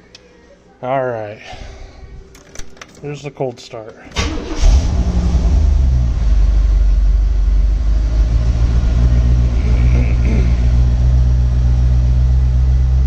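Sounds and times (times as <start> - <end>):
starter motor cranking: 4.1 - 5.2
car engine idling: 4.2 - 13.0.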